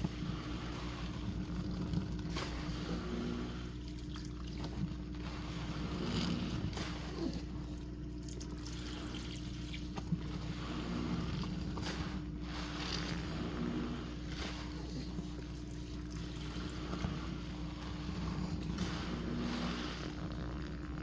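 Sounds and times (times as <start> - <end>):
washing machine motor hum: 0.0 - 21.0
water sloshing and trickling: 3.4 - 13.1, 14.3 - 20.1.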